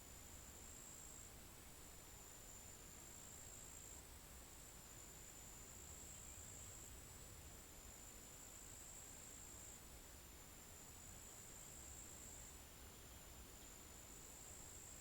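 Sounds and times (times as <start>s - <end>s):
high-pitched insect trill: 10.8s - 15.0s.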